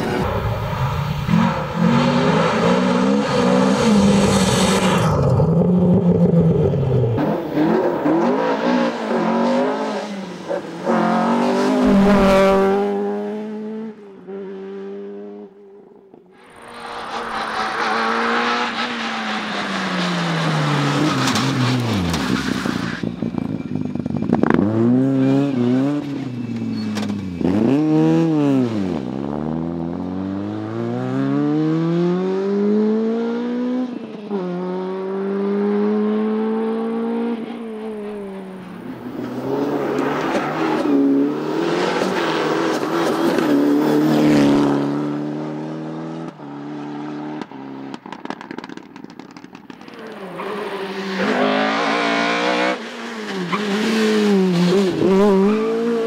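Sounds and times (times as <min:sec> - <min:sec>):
rally car engine revving: 0:01.2 - 0:15.4, 0:38.0 - 0:56.0
noisy rush: 0:11.8 - 0:13.3.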